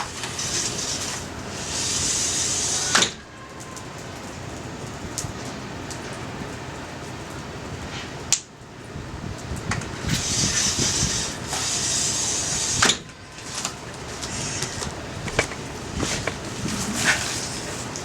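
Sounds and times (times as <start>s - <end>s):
hissing rush: 9.9s - 18.0s
campfire crackling: 13.0s - 18.0s.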